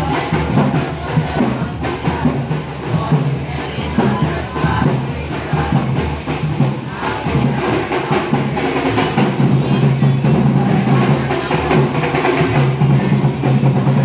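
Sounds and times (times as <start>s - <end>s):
parade band with drums: 0.0s - 14.0s.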